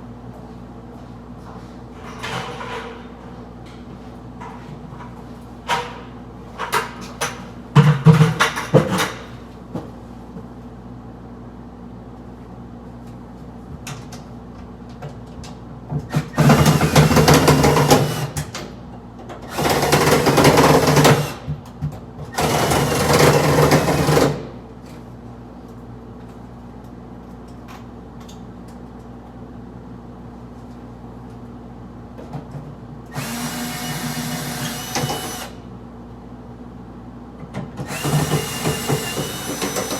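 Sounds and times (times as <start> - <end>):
power drill running: 16.3 - 18.4, 19.5 - 21.4, 22.4 - 24.4, 33.1 - 35.6, 37.8 - 39.9.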